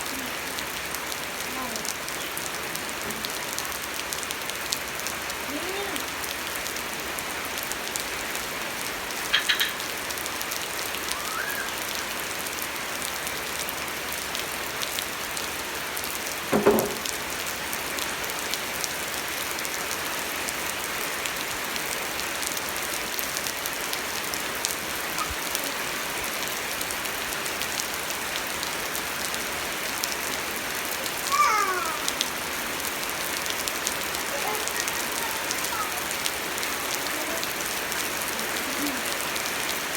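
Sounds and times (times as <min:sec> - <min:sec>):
rain pattering on surfaces: 0:00.0 - 0:39.9
brief falling pitched calls: 0:09.3 - 0:09.8, 0:11.0 - 0:12.1
short knock: 0:16.5 - 0:17.0.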